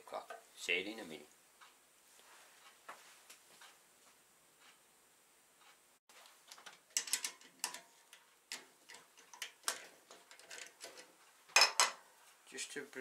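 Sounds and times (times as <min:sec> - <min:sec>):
small objects clicking on a workbench: 0:06.4 - 0:12.0.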